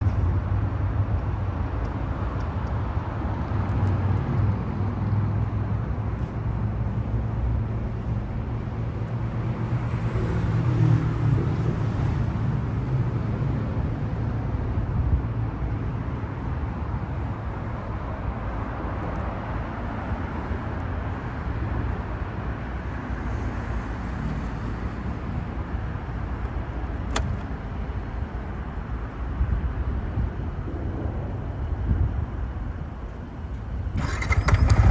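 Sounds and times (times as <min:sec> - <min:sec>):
motorcycle engine idling: 0:33.8 - 0:34.9.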